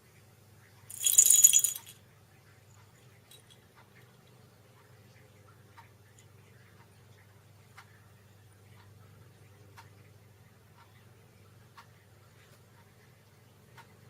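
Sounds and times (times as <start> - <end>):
low steady hum: 0.0 - 14.0
bright metallic jingle: 0.9 - 2.0, 3.3 - 3.6.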